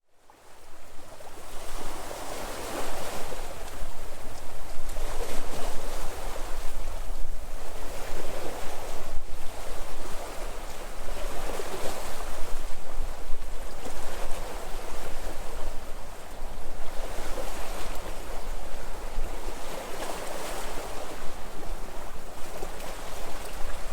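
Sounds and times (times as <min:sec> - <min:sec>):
sea waves breaking: 0:07.4 - 0:23.9.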